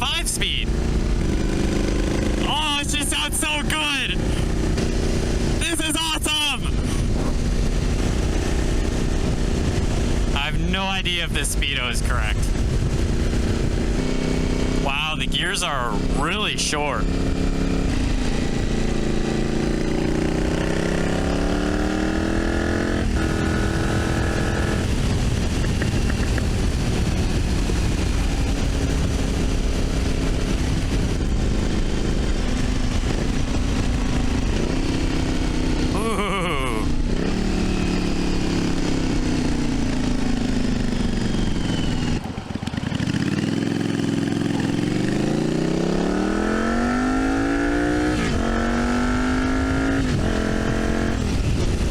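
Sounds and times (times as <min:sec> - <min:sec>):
motorcycle engine revving: 0:00.0 - 0:51.9
wind noise on microphone: 0:06.6 - 0:10.4, 0:12.3 - 0:14.8, 0:17.1 - 0:35.9, 0:44.7 - 0:51.9.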